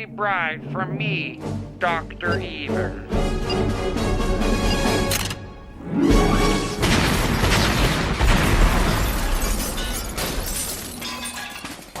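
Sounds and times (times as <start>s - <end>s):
debris crackling and shattering: 6.7s - 12.0s
loud explosion with deep rumble: 6.8s - 9.4s.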